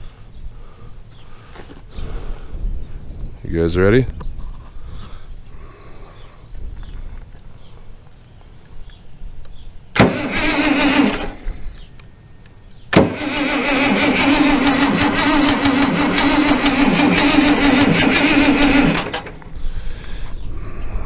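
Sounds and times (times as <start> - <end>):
starter motor whine: 10.0 - 11.6, 12.9 - 19.8
diesel engine cranking: 10.0 - 11.8, 12.9 - 19.9.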